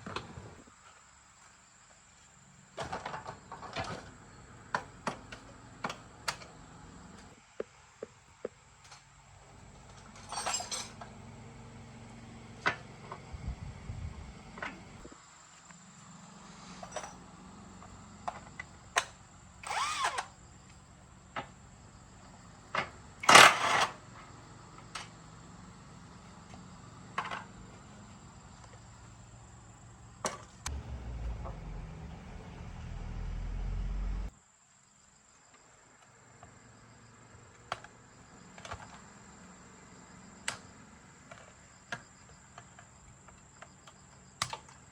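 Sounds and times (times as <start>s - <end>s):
metal tools clinking and knocking: 10.0s - 11.1s
low motor hum: 11.2s - 15.1s, 30.6s - 34.3s.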